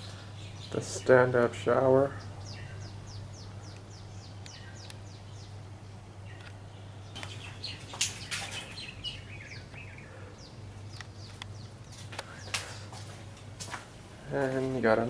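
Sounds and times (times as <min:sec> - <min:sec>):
small birds chirping: 0:00.0 - 0:15.0
steady low hum: 0:00.0 - 0:15.0
sharp clicks: 0:06.4 - 0:08.6.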